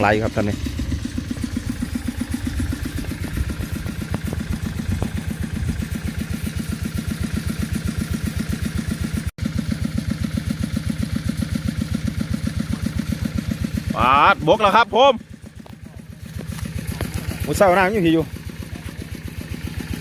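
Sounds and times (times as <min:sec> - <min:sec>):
engine-driven water pump chugging: 0:00.0 - 0:20.0.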